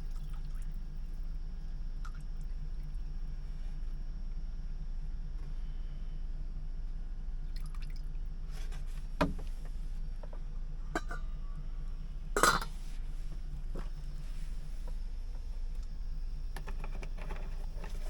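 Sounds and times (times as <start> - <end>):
steady low hum: 0.0 - 18.0
kitchenware clinking and knocking: 12.4 - 12.7.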